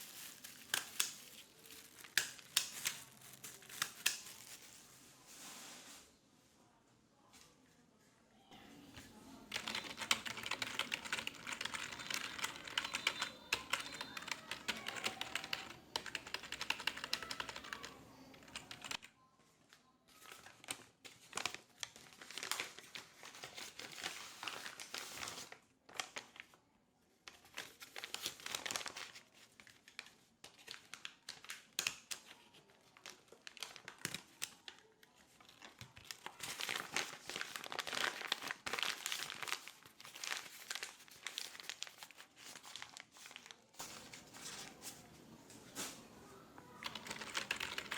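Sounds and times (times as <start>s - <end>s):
typing on keyboard: 9.5s - 19.1s, 46.8s - 47.9s.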